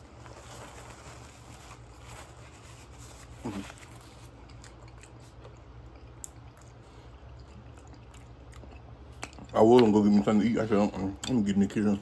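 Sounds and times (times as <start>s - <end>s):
steady low hum: 0.0s - 12.0s
person chewing and smacking: 3.2s - 11.5s.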